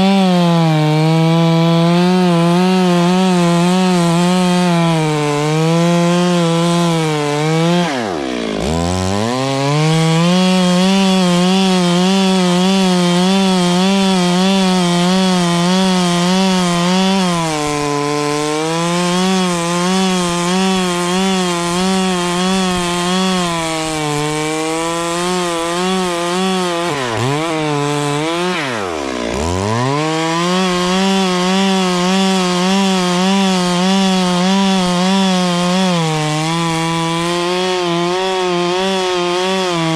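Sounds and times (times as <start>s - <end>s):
chainsaw cutting a tree: 0.0s - 39.9s.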